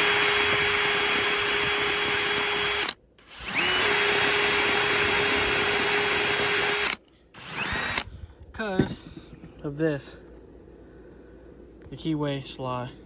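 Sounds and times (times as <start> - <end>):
high-speed rotary grinder: 0.0 - 8.0.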